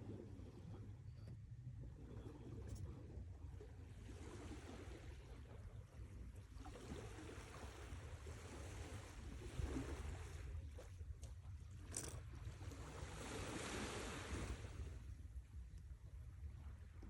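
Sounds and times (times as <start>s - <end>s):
low steady rumble: 0.0s - 6.6s, 14.1s - 17.0s
surf washing ashore: 12.8s - 15.1s.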